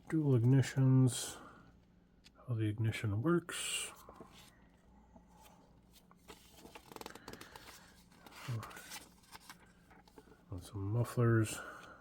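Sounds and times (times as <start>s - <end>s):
magazine pages rustling: 5.4s - 10.4s.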